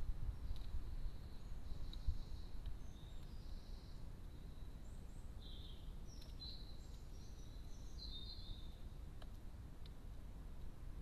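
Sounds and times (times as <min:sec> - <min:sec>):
songbird twittering: 0:00.3 - 0:09.0
faint ticks: 0:00.5 - 0:00.8, 0:01.8 - 0:03.4, 0:09.1 - 0:10.8.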